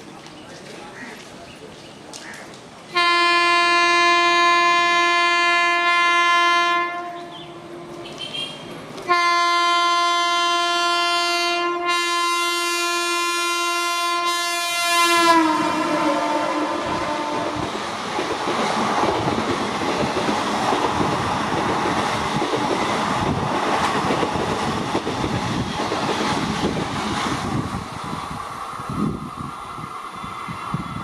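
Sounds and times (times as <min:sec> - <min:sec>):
rush and clatter of passing train: 0:00.0 - 0:31.0
train horn long blasts: 0:03.0 - 0:17.8.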